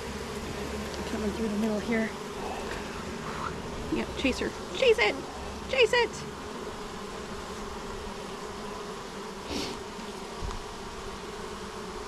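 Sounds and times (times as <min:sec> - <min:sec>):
honeybees buzzing: 0:00.0 - 0:12.0
short hiss: 0:09.5 - 0:09.8.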